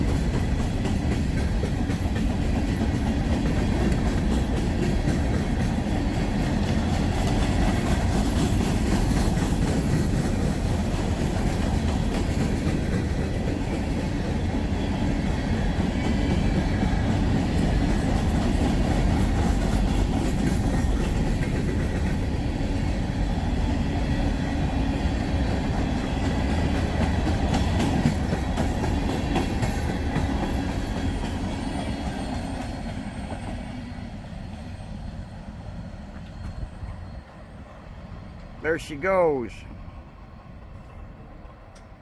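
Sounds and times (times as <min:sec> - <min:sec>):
wheels clicking over rail joints: 0:00.0 - 0:23.2, 0:25.3 - 0:33.5
train low rumble: 0:00.0 - 0:42.0.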